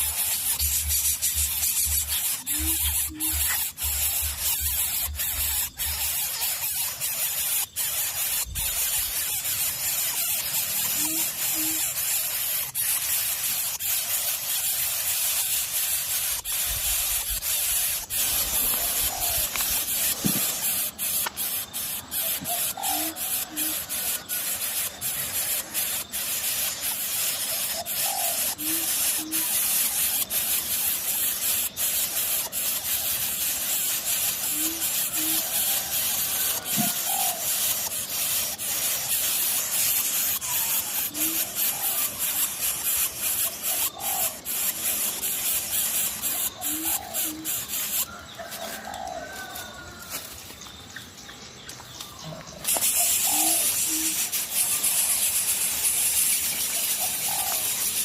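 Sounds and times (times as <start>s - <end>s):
coucal hooting: 0.0s - 6.5s, 10.6s - 12.1s, 17.6s - 30.5s, 34.1s - 38.6s, 40.0s - 45.3s, 46.0s - 50.1s, 52.3s - 58.0s
steady hiss: 0.0s - 58.0s
crackling clicks: 18.2s - 21.6s, 50.1s - 56.8s.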